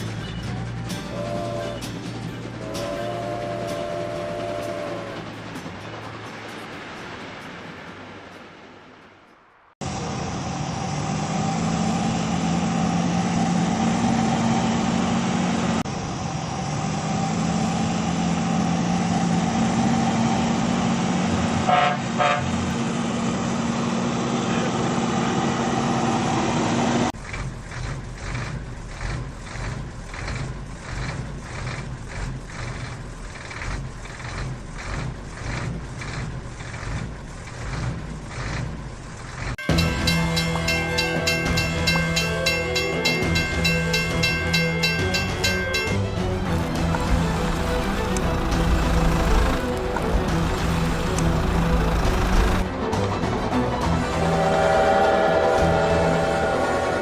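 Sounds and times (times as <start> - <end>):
rhythmic steam chuffing: 0.0 - 57.0
horn-like drone: 0.4 - 5.5, 21.6 - 22.7, 39.6 - 57.0.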